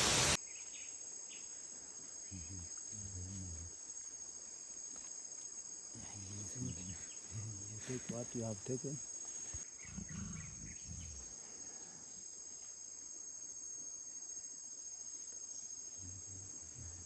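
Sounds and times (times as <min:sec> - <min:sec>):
insect chorus chirring: 0:00.0 - 0:17.0.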